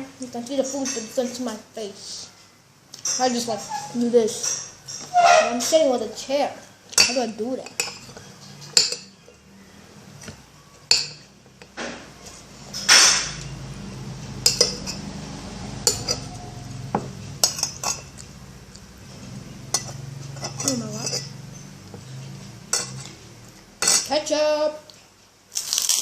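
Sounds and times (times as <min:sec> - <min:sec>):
low steady hum: 0:03.7 - 0:25.1
cutlery clinking against a plate: 0:07.0 - 0:09.4.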